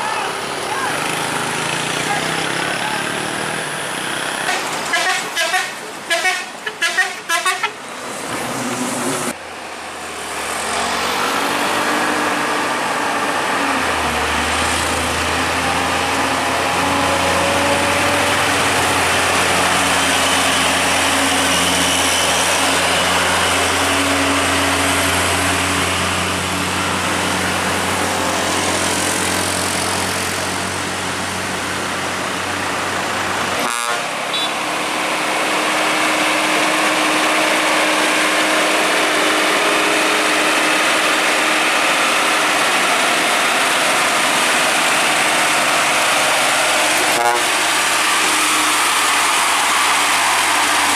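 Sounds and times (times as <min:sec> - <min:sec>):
truck diesel engine running: 0:00.0 - 0:07.6, 0:08.6 - 0:50.9
vehicle horn short toots: 0:33.6 - 0:34.6.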